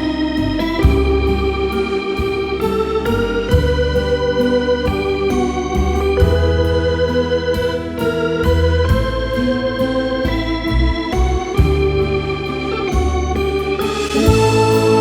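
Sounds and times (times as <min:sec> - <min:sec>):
electric organ chords: 0:00.0 - 0:15.0
steady bass line: 0:00.0 - 0:15.0.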